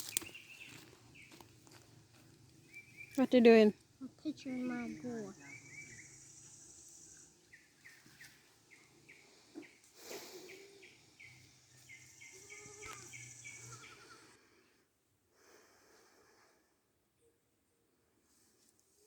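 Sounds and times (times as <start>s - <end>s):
faint bird chirping: 0.0s - 14.8s
high insect buzz: 4.6s - 7.6s, 11.6s - 14.3s.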